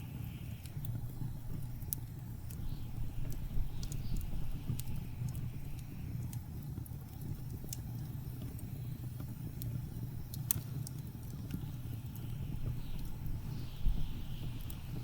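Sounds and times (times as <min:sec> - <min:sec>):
wood fire crackling and popping: 0:00.0 - 0:15.0
blizzard wind rumble: 0:11.0 - 0:15.0.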